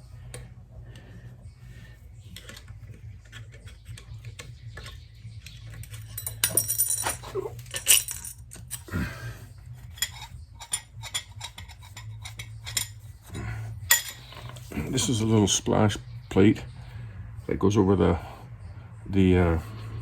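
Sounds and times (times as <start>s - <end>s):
metal tools clinking and scraping: 2.2s - 8.9s, 9.6s - 15.6s
metal clanks: 2.4s - 8.9s, 9.9s - 15.2s.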